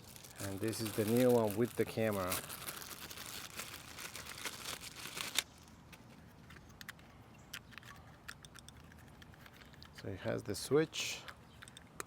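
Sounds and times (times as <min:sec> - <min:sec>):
plastic crinkling: 0:00.0 - 0:06.2.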